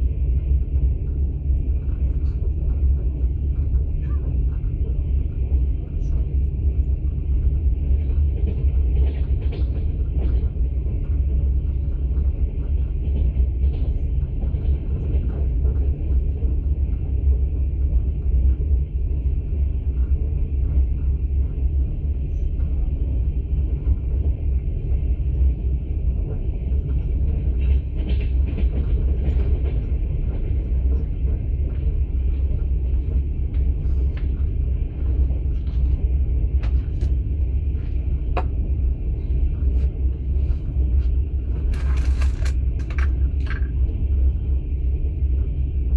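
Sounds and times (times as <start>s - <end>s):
faint clatter and ticks: 0.0s - 45.9s
train rumbling: 0.0s - 45.9s.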